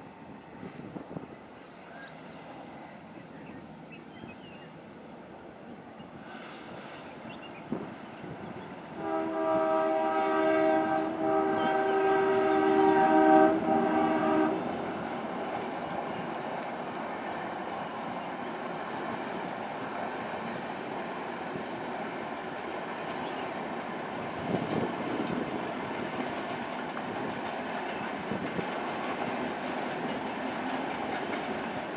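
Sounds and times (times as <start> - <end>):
moving train rumbling: 0.0 - 31.9
locomotive horn blast: 9.0 - 14.8.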